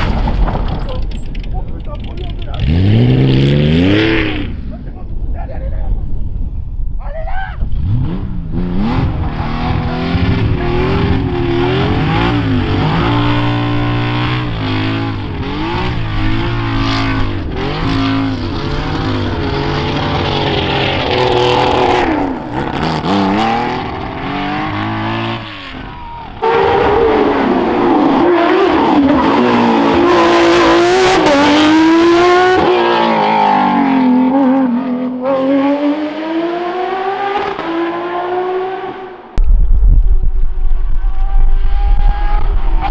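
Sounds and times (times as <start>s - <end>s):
rally car engines revving: 0.0s - 4.9s, 7.6s - 39.4s, 41.0s - 42.9s.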